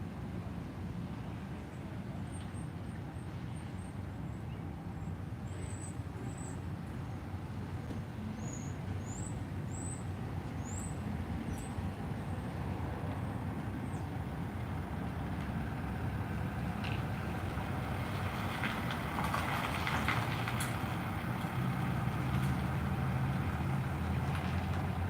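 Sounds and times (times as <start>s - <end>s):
car engine running: 12.0s - 25.0s.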